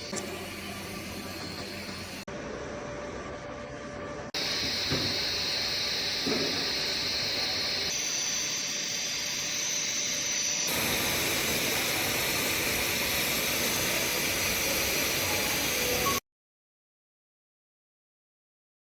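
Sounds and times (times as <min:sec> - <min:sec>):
welding machine hissing: 0:00.0 - 0:02.3, 0:04.4 - 0:16.2.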